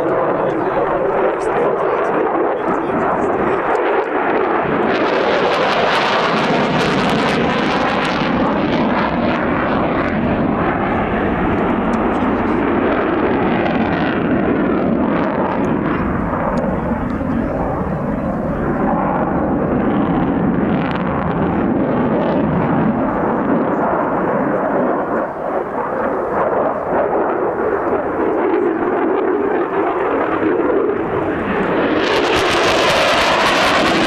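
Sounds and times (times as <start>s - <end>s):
aircraft engine noise: 0.0s - 34.0s.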